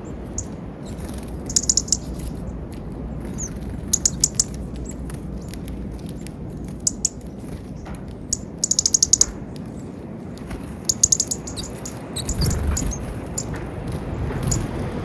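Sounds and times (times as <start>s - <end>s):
small birds chipping: 0.0s - 15.0s
brief low rumble: 12.3s - 13.3s.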